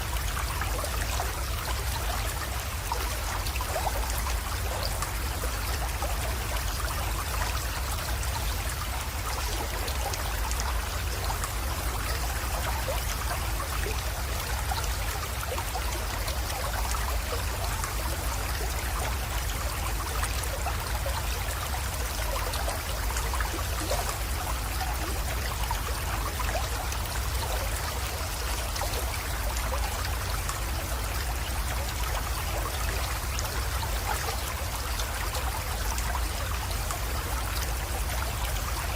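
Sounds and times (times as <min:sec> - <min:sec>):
creek water trickling: 0:00.0 - 0:38.9.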